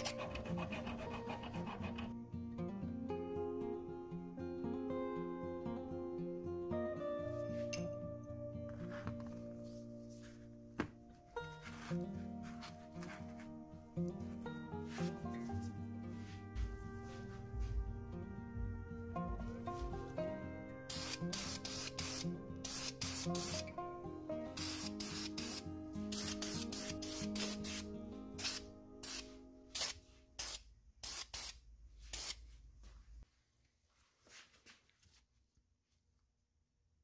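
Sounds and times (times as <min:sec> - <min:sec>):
background music: 0:00.0 - 0:30.2
aerosol can spraying: 0:20.9 - 0:23.7, 0:24.6 - 0:32.4.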